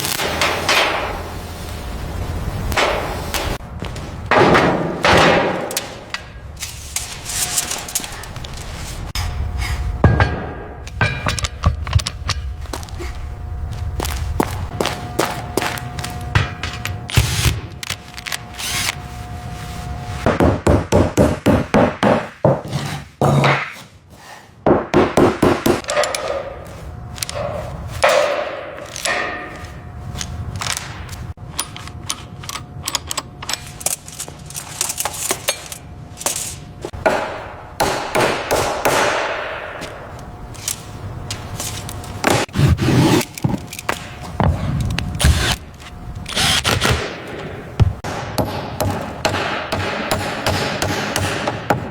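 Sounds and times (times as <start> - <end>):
hand tools scraping: 22.5 - 24.6, 40.6 - 47.4.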